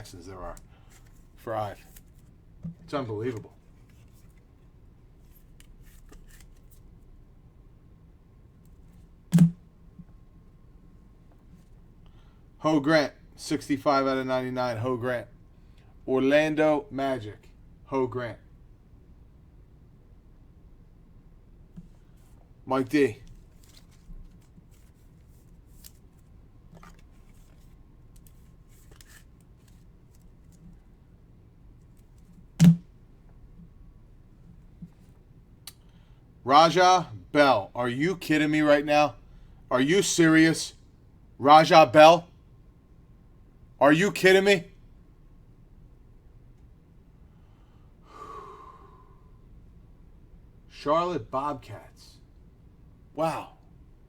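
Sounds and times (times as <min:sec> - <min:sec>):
cards sliding: 0:05.2 - 0:06.8, 0:23.3 - 0:30.7.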